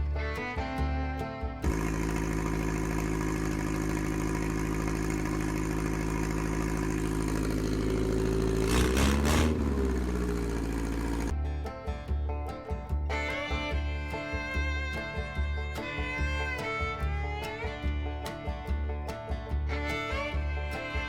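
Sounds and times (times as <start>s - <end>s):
car engine idling and revving: 0.6s - 13.0s.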